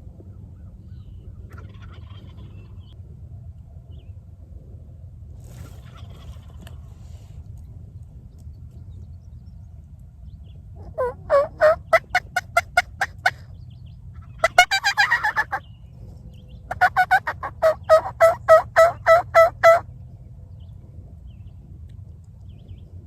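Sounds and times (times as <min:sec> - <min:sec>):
turkey gobble: 0:01.5 - 0:02.5, 0:10.8 - 0:13.4, 0:14.2 - 0:15.6, 0:16.7 - 0:19.8
turkey yelps: 0:01.5 - 0:02.5, 0:10.8 - 0:13.4, 0:14.2 - 0:15.6, 0:16.7 - 0:19.8.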